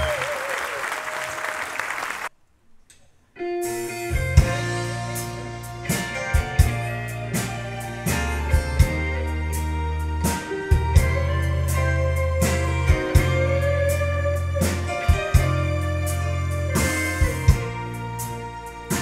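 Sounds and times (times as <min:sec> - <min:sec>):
bass: 0:00.0 - 0:00.4, 0:03.4 - 0:19.0
applause: 0:00.0 - 0:02.3
guitar: 0:03.4 - 0:19.0.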